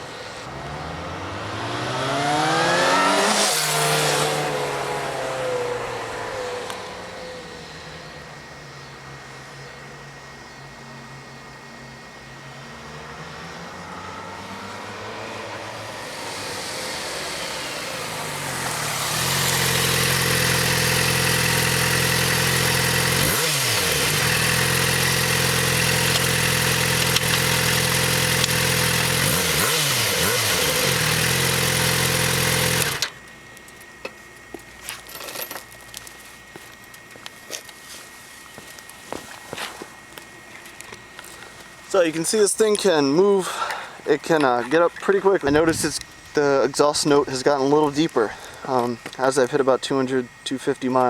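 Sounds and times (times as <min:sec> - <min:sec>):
motorcycle engine revving: 0:00.4 - 0:08.0, 0:12.6 - 0:33.3.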